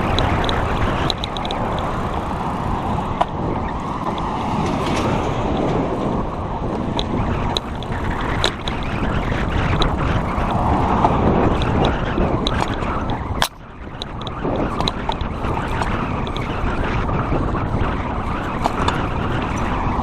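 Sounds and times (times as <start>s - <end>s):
bike ticking and rattling: 0.0s - 20.0s
tyre and road noise: 0.0s - 20.0s
wind rushing over microphone: 0.0s - 20.0s.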